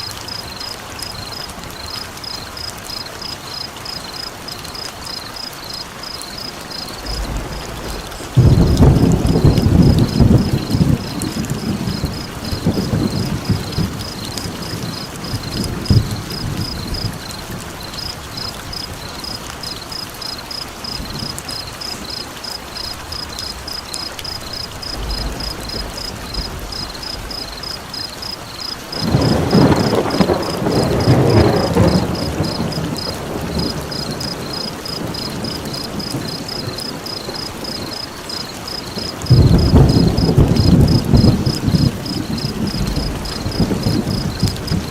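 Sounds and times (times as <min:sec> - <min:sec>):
steady rain: 0:00.0 - 0:44.9
rolling thunder: 0:06.8 - 0:19.0, 0:24.3 - 0:38.0, 0:38.9 - 0:44.9.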